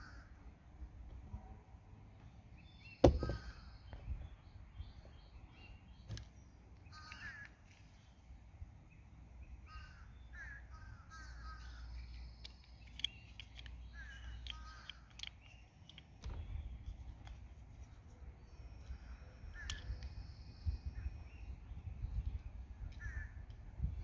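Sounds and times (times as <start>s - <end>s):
faint bird calls: 6.8s - 8.2s, 9.5s - 16.0s, 18.4s - 23.7s
sharp clicks: 12.1s - 16.4s
low wind rumble: 16.2s - 24.0s.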